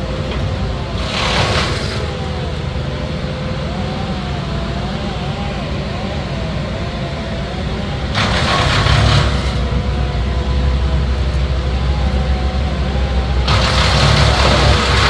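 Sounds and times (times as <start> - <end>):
harsh rushing noise: 0.0 - 2.5, 8.1 - 10.7, 13.4 - 15.0
large engine rumbling: 0.0 - 15.0.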